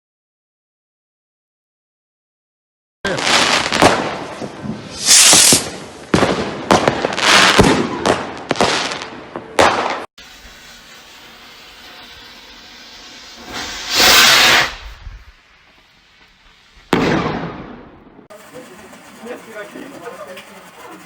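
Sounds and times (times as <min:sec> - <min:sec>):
rocket whooshing up: 0:03.4 - 0:18.3
rocket reports: 0:18.3 - 0:21.0.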